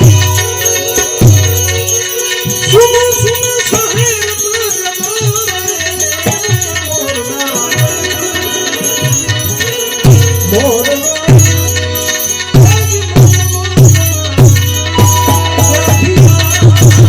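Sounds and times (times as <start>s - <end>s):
hand drum beat: 0.0s - 4.2s, 12.6s - 17.0s
sustained drone tones: 0.0s - 12.5s
jingling rattle percussion: 0.0s - 17.0s
wavering melody with vibrato: 0.0s - 17.0s.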